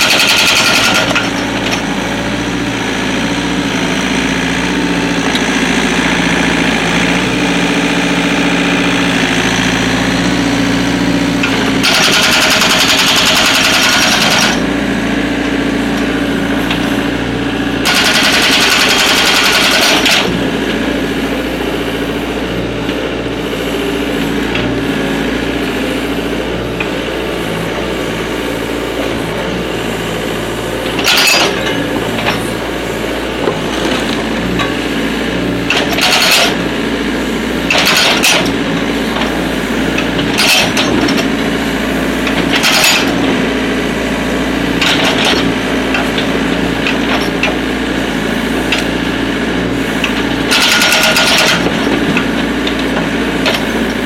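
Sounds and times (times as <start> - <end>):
hydraulic breaker bursts: 0.0 - 1.4, 11.4 - 14.6, 17.8 - 20.4, 50.0 - 53.9
diesel engine running: 0.0 - 54.0.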